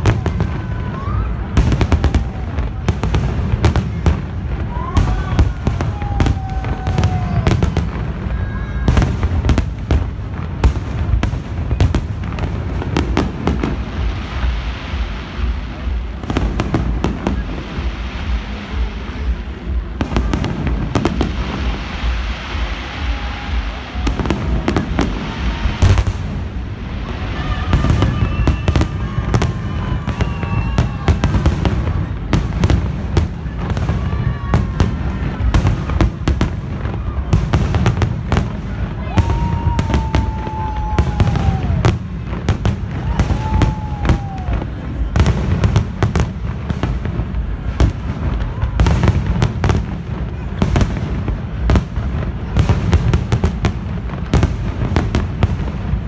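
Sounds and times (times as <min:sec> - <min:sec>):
firework bangs and crackles: 0:00.0 - 0:56.0.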